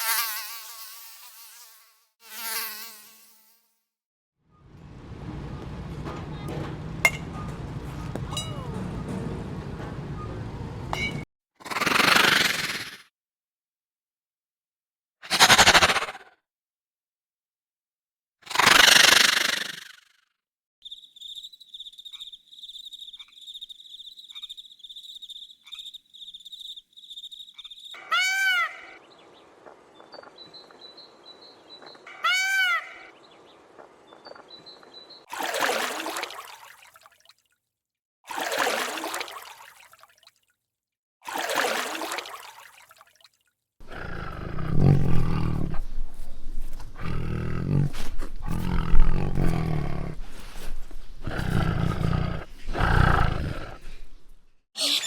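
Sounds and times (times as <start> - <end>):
low pulsing rumble: 4.6 - 11.2
loud harsh animal calls: 28.0 - 29.0, 32.0 - 33.2, 54.8 - 55.0
rising and falling animal calls: 28.0 - 30.3, 31.8 - 33.9, 54.8 - 55.0
high-pitched animal trill: 54.8 - 55.0.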